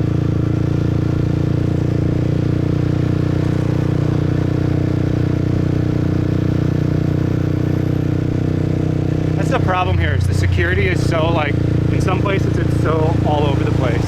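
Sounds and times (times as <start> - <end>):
motorbike engine humming: 0.0 - 14.0.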